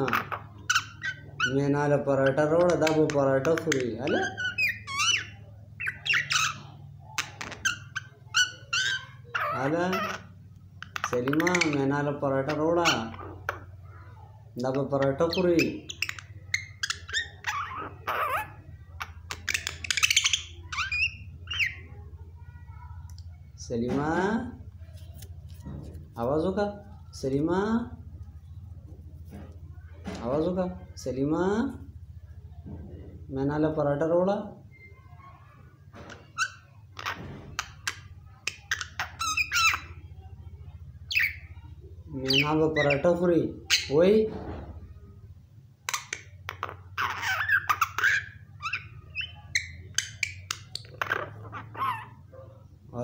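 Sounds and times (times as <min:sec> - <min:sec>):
myna squawking and clicking: 0:00.0 - 0:22.2, 0:35.2 - 0:40.1, 0:45.8 - 0:52.8
myna clicking and whistling: 0:10.8 - 0:11.8, 0:45.9 - 0:52.0
myna harsh squawk: 0:46.8 - 0:52.3.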